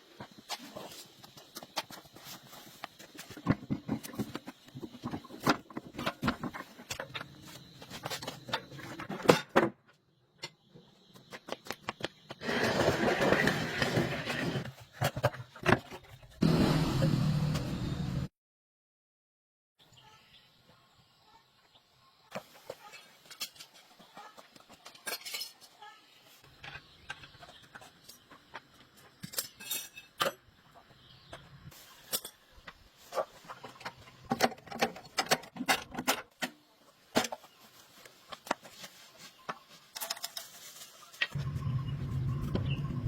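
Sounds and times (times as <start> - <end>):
small metal objects clinking: 24.9 - 26.0.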